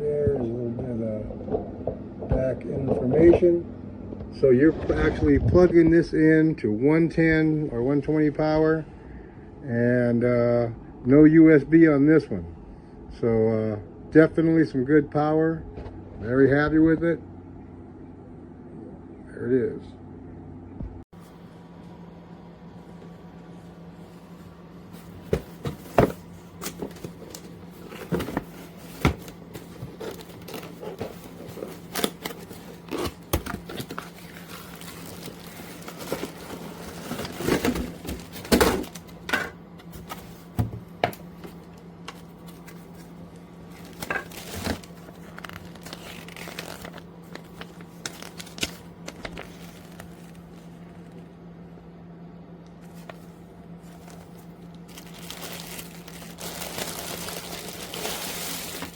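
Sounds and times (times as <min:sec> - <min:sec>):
crinkling and rustling of handling: 0:22.7 - 0:51.4, 0:52.6 - 0:58.9.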